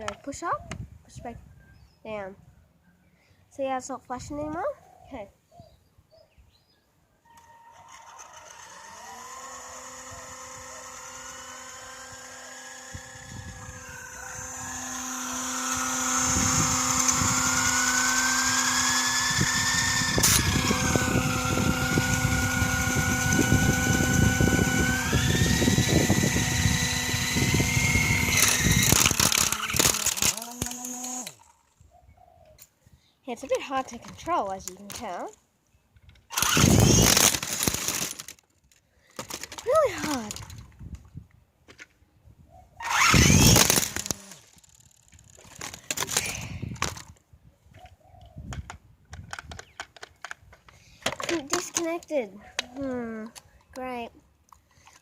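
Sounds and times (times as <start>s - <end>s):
toy helicopter motors whining: 7.3s - 31.8s, 36.2s - 40.8s, 42.8s - 47.2s, 50.7s - 53.8s, 54.6s - 55.0s.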